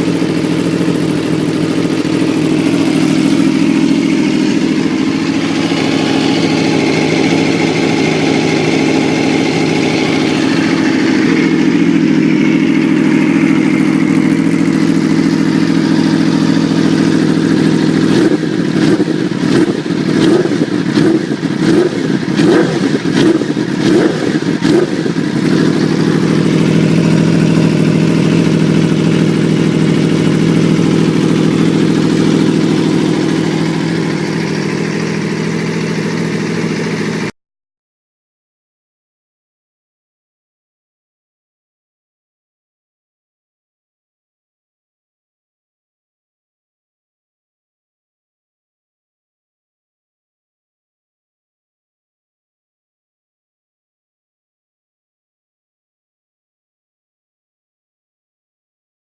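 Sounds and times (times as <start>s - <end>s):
motorcycle engine revving: 0.0s - 37.3s.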